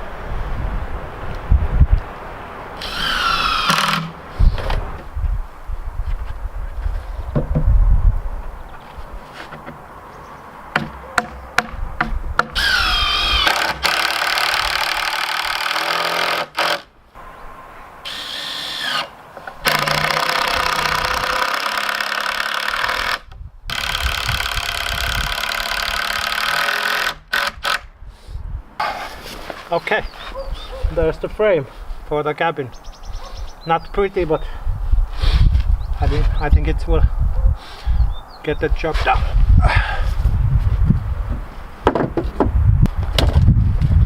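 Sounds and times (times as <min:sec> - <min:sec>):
cordless drill motor whine: 0:02.8 - 0:04.2, 0:12.6 - 0:14.0, 0:18.1 - 0:19.1
knocks: 0:07.3 - 0:07.8, 0:10.7 - 0:12.6, 0:41.8 - 0:42.5.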